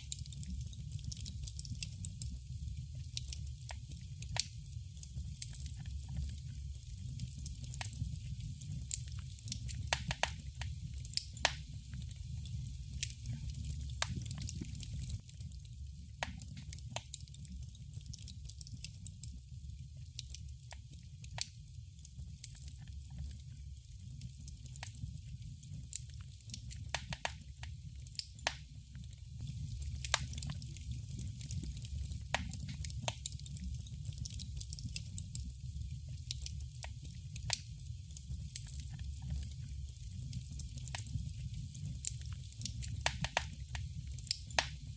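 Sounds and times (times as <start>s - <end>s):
wood fire pops and snaps: 0.0s - 19.4s, 20.0s - 44.9s
flames rumbling: 0.0s - 44.9s.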